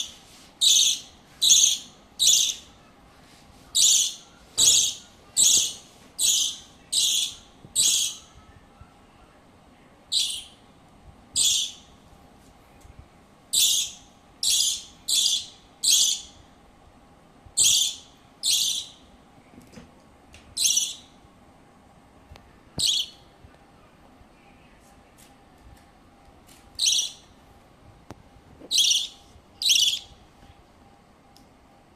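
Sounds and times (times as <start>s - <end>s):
bird squawking: 28.7s - 30.1s.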